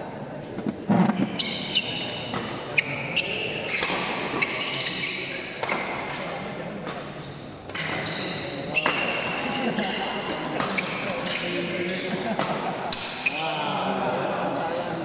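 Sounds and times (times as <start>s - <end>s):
crowd voices in echoing hall: 0.0s - 15.0s
shoe squeaks on court floor: 1.0s - 6.1s, 7.8s - 12.1s
racket hitting shuttlecock: 3.7s - 4.6s.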